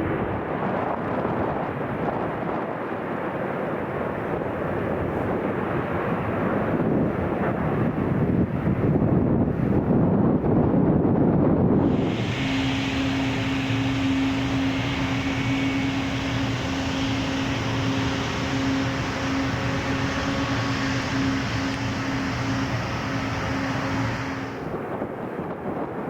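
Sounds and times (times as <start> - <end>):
jet engines whining: 11.7 - 24.9.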